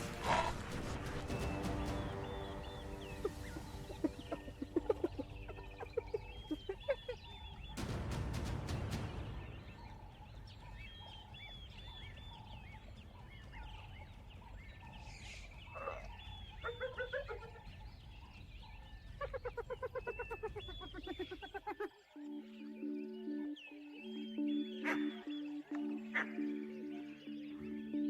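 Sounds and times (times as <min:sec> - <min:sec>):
loud rush: 0:00.0 - 0:04.8, 0:07.8 - 0:10.2
birds chirping and calling: 0:00.0 - 0:07.8, 0:08.9 - 0:28.0
bird cackling call: 0:01.4 - 0:07.6.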